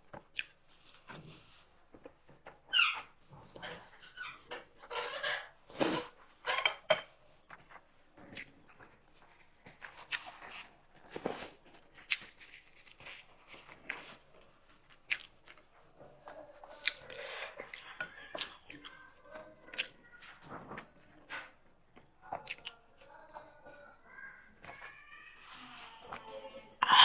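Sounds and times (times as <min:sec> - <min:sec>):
person chewing and smacking: 0:00.1 - 0:01.2, 0:07.5 - 0:09.0, 0:09.7 - 0:15.8, 0:16.7 - 0:19.0, 0:19.7 - 0:20.0, 0:22.3 - 0:22.8.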